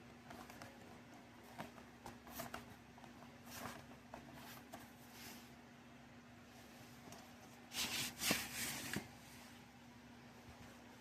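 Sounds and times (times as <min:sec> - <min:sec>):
faint steady hum: 0:00.0 - 0:11.0
record sleeve rustling: 0:07.0 - 0:09.2.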